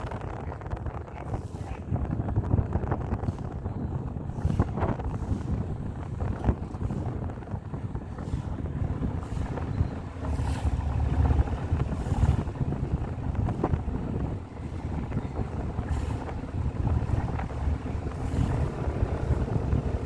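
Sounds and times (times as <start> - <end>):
boat engine rumble: 0.0 - 20.0
wind buffeting microphone: 0.0 - 20.0.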